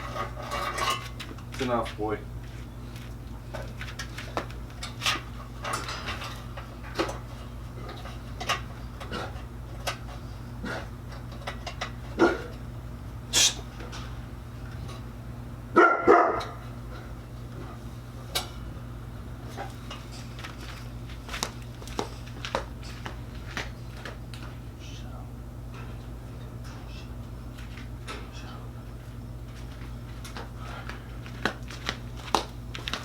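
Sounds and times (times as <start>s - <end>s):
steady low hum: 0.0s - 33.0s
dog barking: 12.2s - 12.5s, 15.8s - 16.6s.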